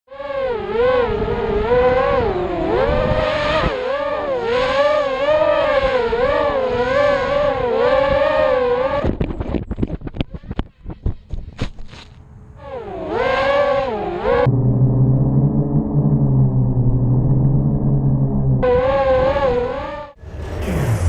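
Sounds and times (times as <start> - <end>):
quadcopter motors whining: 0.3 - 12.0, 12.6 - 21.0.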